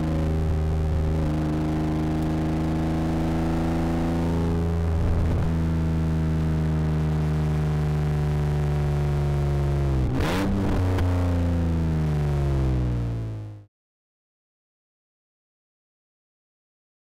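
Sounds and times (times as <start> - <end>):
rally car engine at high revs: 0.0 - 13.6.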